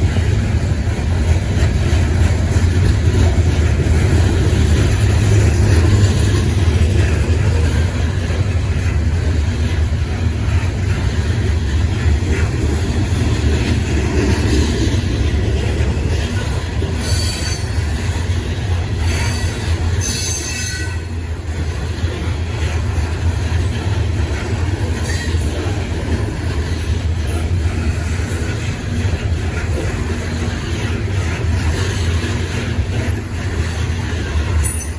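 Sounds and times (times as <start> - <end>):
freight train cars rumbling: 0.0 - 34.9
train wheels squealing: 16.1 - 21.3, 24.9 - 25.6, 26.8 - 28.7, 31.4 - 34.9.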